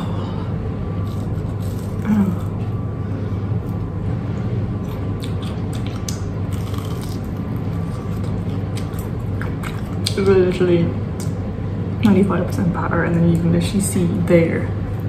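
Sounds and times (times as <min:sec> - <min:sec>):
steady low hum: 0:00.0 - 0:15.0
crisp crackles of chewing: 0:01.0 - 0:02.8, 0:04.8 - 0:10.3.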